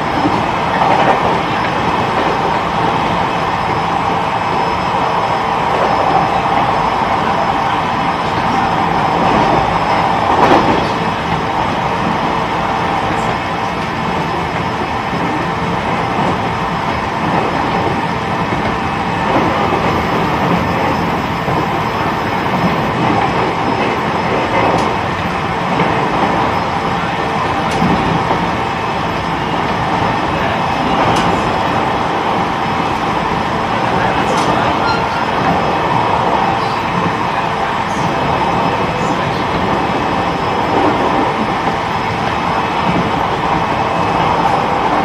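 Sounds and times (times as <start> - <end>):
train wheels rolling on rails: 0.0 - 45.0.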